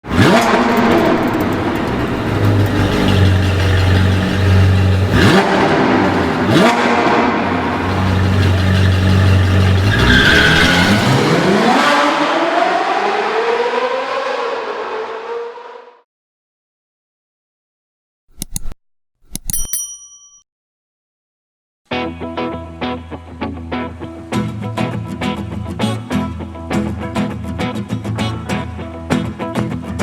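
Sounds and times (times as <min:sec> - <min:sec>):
car engine revving: 0:00.1 - 0:16.0.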